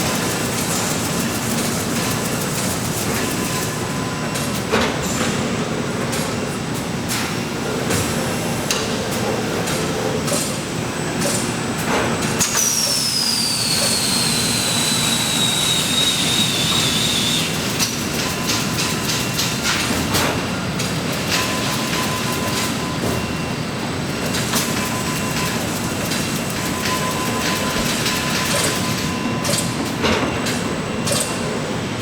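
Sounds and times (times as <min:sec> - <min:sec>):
factory machinery running: 0:00.0 - 0:32.0.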